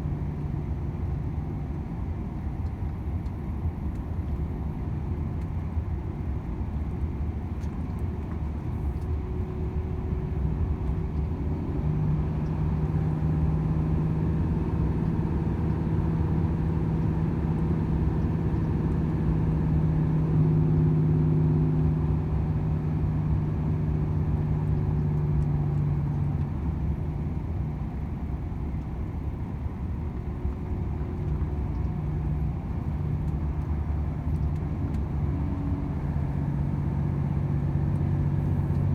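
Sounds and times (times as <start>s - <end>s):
steady engine hum: 0.0s - 38.9s
tyres rumbling on road: 2.9s - 38.9s.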